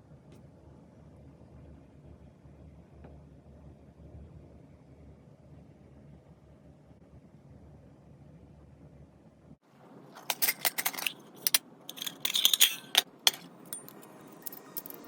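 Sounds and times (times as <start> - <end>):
metal cookware clinking and rattling: 10.1 - 15.0.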